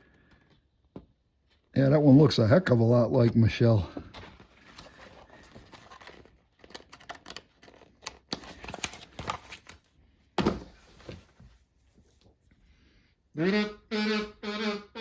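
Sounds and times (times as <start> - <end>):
paper pages rustling: 4.0 - 12.3.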